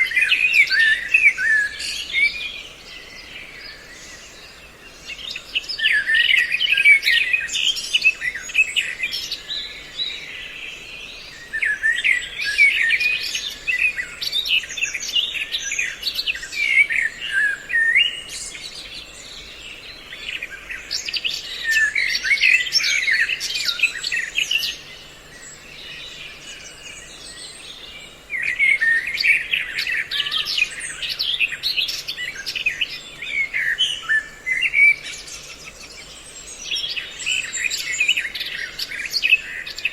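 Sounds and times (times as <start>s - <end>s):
recorded songbird calls: 0.0s - 39.9s.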